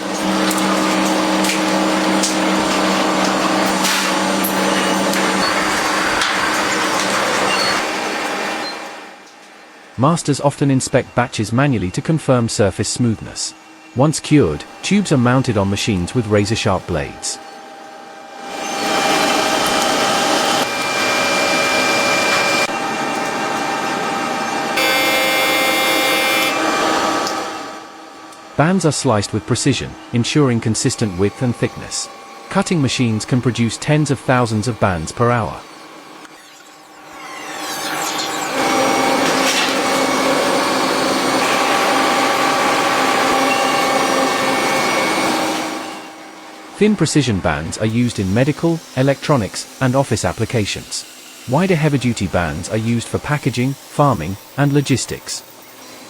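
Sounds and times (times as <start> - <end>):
factory machinery whirring: 0.0 - 56.0
high whining tones: 18.4 - 27.3, 29.9 - 46.2.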